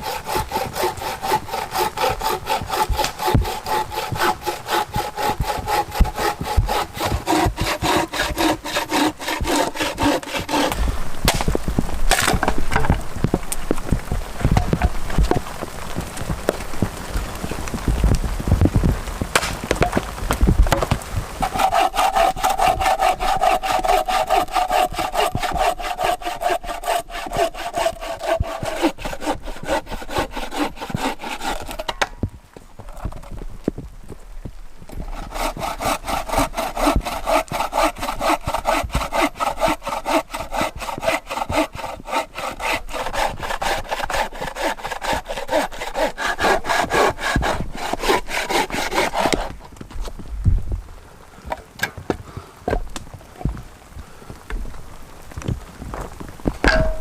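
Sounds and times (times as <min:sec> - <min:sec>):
hand saw cutting wood: 0:00.0 - 0:13.0, 0:20.7 - 0:32.1, 0:34.9 - 0:49.7, 0:56.7 - 0:57.0.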